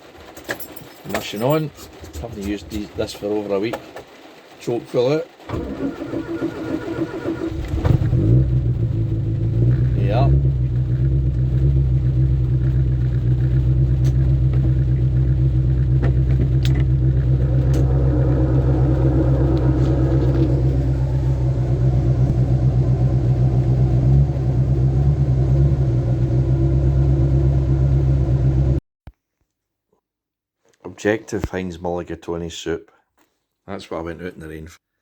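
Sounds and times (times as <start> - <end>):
petrol engine running: 5.5 - 28.8.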